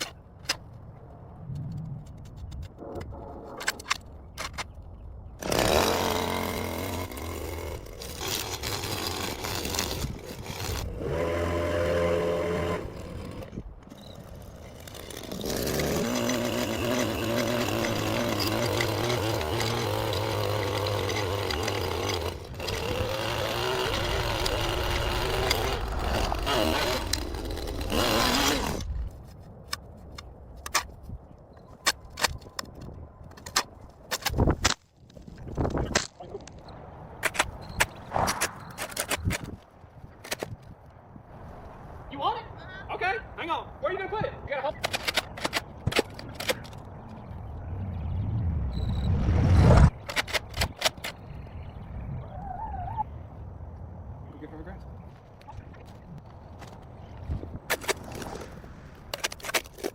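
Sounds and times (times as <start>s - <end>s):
small petrol engine revving: 5.4s - 13.6s, 14.3s - 28.9s.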